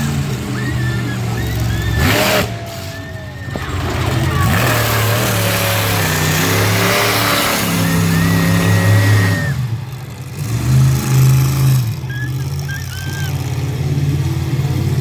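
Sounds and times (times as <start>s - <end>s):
truck engine revving hard: 0.0s - 15.0s.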